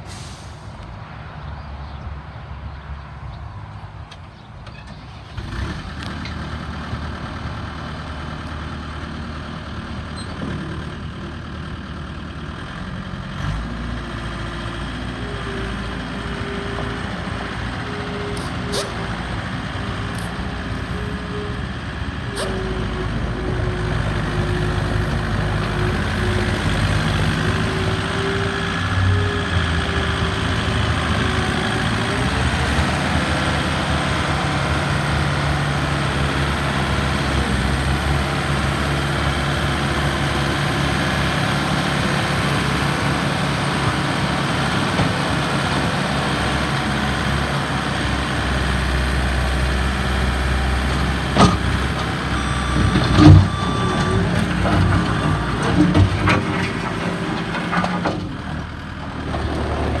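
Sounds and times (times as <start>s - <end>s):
diesel engine running: 3.2s - 60.0s.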